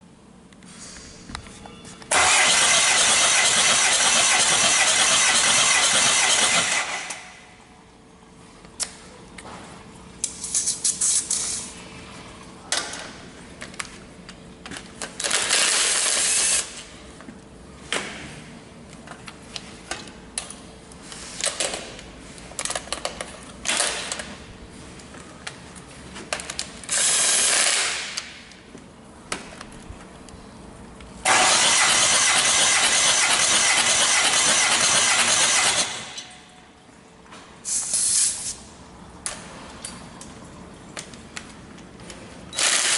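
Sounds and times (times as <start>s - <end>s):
diesel engine cranking on starter: 2.1s - 7.3s, 31.3s - 36.2s.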